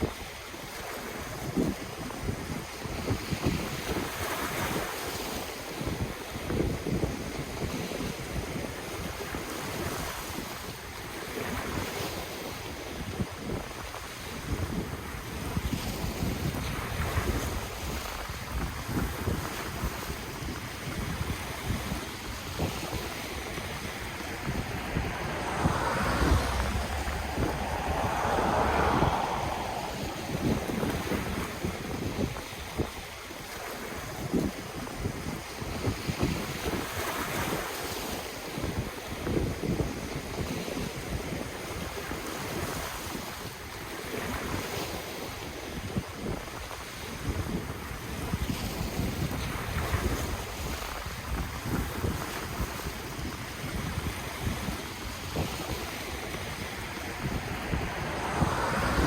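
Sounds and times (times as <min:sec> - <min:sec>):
ocean waves on the shore: 0:00.0 - 0:40.4, 0:41.9 - 0:59.0
wind buffeting microphone: 0:00.0 - 0:59.0
ocean waves washing in: 0:14.6 - 0:32.8, 0:52.0 - 0:59.0.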